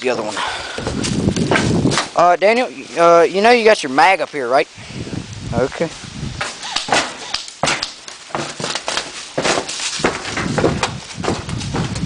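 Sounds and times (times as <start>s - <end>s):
sharp knocks and scrapes: 6.4s - 12.0s.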